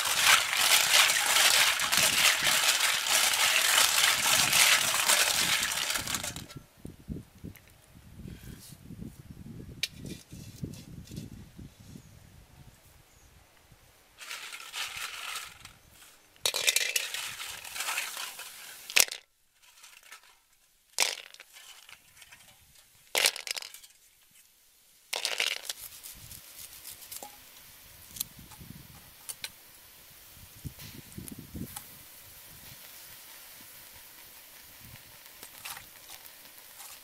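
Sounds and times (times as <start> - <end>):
shells clattering in metal wok: 0.0 - 6.6, 14.2 - 15.7, 16.5 - 20.4, 21.0 - 22.5, 23.2 - 24.0, 25.2 - 25.8.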